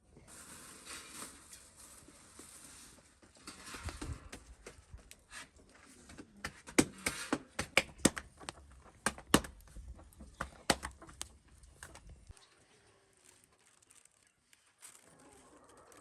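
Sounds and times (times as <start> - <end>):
sharp clicks and knocks: 6.4 - 12.2.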